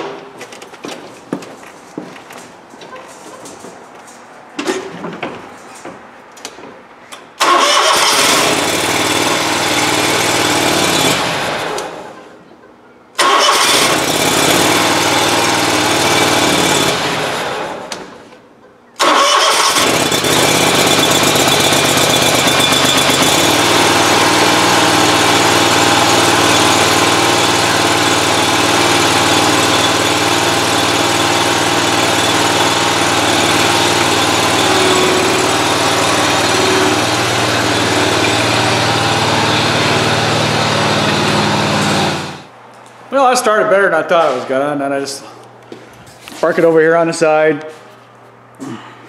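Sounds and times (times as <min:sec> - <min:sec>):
mower engine starting and running: 0:07.2 - 0:12.3, 0:13.2 - 0:18.3, 0:19.0 - 0:42.6.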